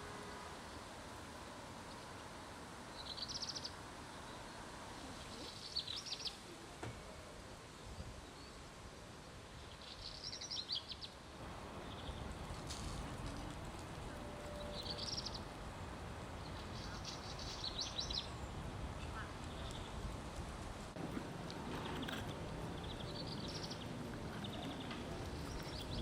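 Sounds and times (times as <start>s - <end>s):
faint outdoor background: 0.0s - 26.0s
songbird singing: 2.9s - 6.7s, 9.6s - 12.6s, 14.0s - 20.1s, 21.5s - 26.0s.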